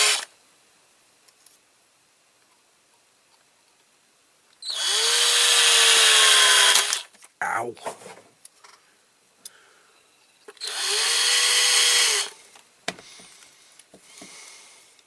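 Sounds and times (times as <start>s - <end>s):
small electric drill drilling: 0.0s - 0.3s, 4.6s - 7.0s, 10.6s - 12.4s.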